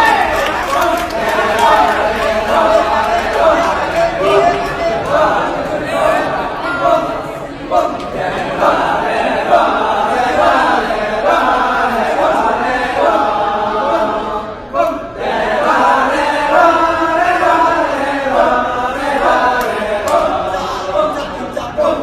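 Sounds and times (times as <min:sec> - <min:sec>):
many voices chanting: 0:00.0 - 0:22.0.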